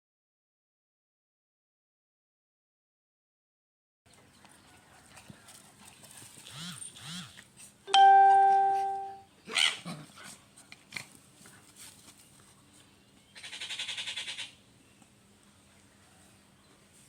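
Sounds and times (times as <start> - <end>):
dogs scuffing and clicking: 10.2 - 12.6.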